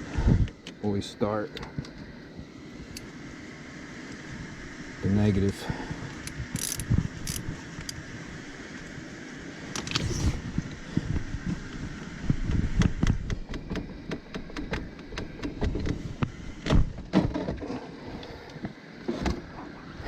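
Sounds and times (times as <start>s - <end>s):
ratchet wrench clicking: 6.2s - 8.0s.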